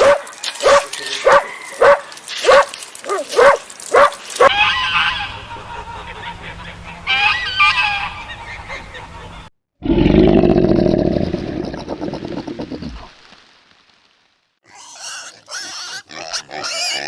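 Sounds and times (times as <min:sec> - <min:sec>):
geese honking: 0:04.4 - 0:09.5
animal long low call: 0:09.8 - 0:13.0.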